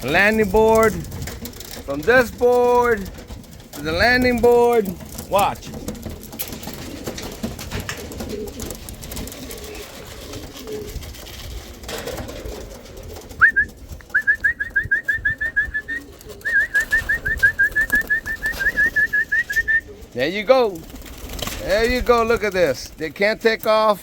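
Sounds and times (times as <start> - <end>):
pigeons cooing: 0.0 - 23.0
fast trilling whistle: 13.4 - 19.9.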